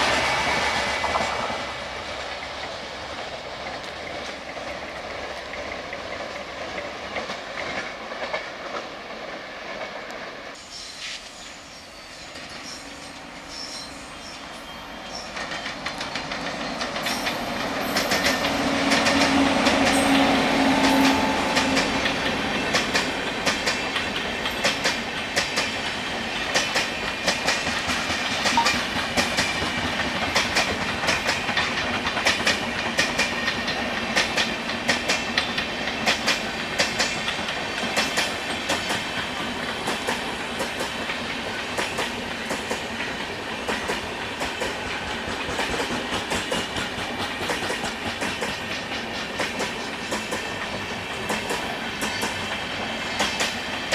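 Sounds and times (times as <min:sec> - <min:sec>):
locomotive hum: 0:00.0 - 0:10.6, 0:11.6 - 0:27.3
train wheels clattering over rail joints: 0:00.0 - 0:10.6, 0:15.1 - 0:53.9.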